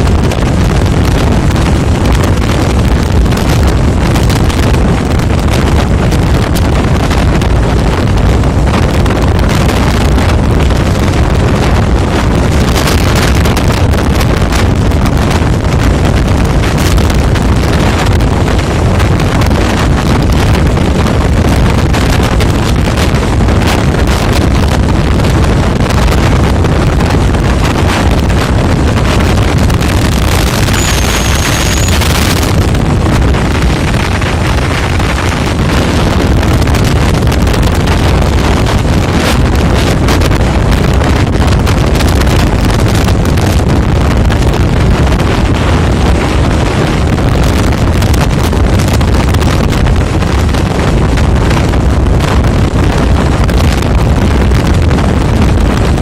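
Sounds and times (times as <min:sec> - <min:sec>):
vehicle low rumble: 0:00.0 - 0:56.0
wind on microphone: 0:00.0 - 0:56.0
high whistle-like tone: 0:30.5 - 0:32.3.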